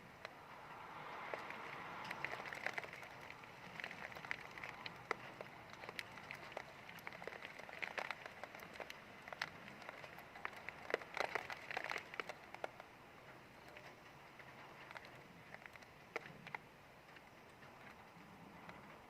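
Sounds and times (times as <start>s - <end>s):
rain hiss: 0.0s - 19.0s
raindrops ticking on hard surface: 0.0s - 19.0s.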